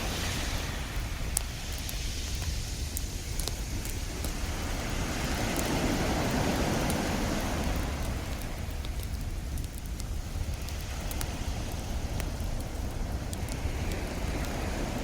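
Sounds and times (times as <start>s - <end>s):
ocean wave surging: 0.0s - 2.3s, 4.4s - 8.6s
campfire crackling and popping: 0.0s - 15.0s.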